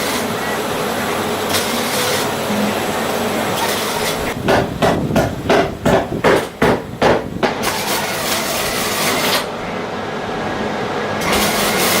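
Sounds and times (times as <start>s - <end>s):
steady hissing noise: 0.0s - 12.0s
hammer blows: 4.1s - 8.0s.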